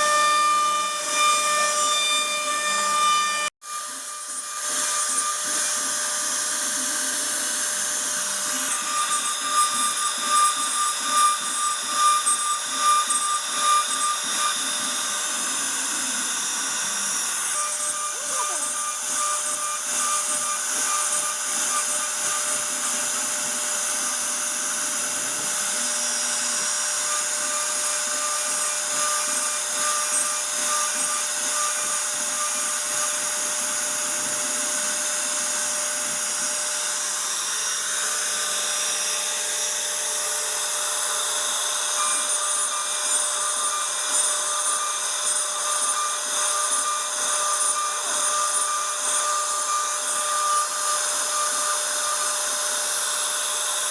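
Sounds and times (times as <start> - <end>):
router spindle whine: 0.0 - 53.9.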